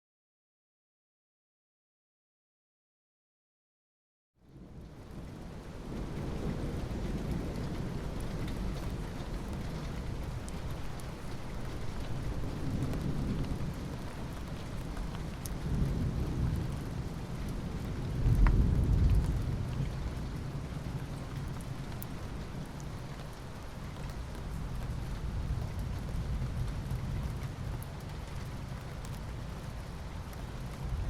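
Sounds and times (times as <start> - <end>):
steady rainfall: 4.4 - 31.0
rolling thunder: 15.6 - 22.0.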